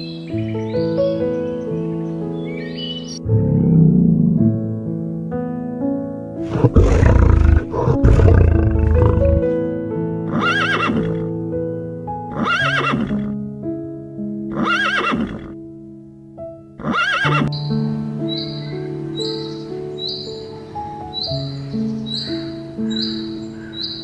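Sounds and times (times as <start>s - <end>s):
soft piano music: 0.0s - 6.5s, 9.4s - 24.0s
lion roaring: 3.2s - 4.7s, 6.4s - 9.6s
horse neighing: 6.5s - 9.6s, 10.3s - 11.3s, 12.3s - 13.3s, 14.5s - 15.5s, 16.8s - 17.5s.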